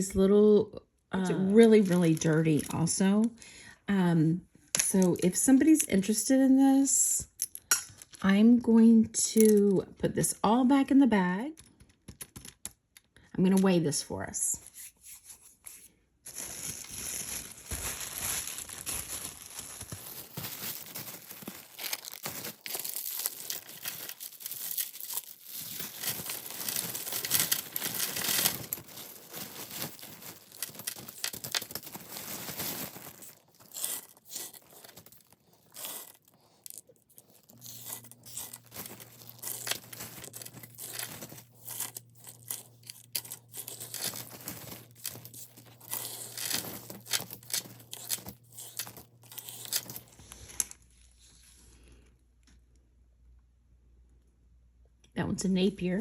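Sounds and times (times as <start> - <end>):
bag crinkling and rustling: 14.8 - 51.7.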